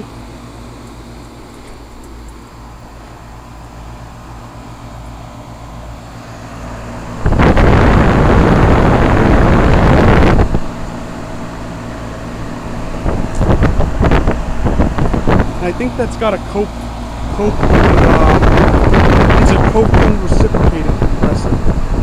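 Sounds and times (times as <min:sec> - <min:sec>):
heat pump humming: 0:00.0 - 0:22.0
loud rush of air: 0:02.5 - 0:22.0
wind gusts on microphone: 0:07.0 - 0:11.2, 0:12.5 - 0:22.0.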